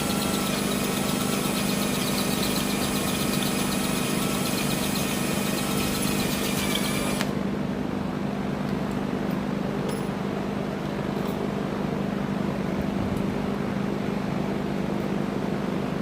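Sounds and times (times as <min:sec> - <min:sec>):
electric drill boring steel: 0:00.0 - 0:07.3.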